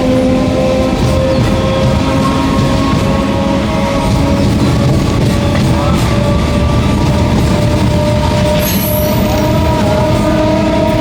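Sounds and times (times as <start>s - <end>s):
train rumbling: 0.0s - 11.0s
wheels squealing on rails: 0.0s - 11.0s.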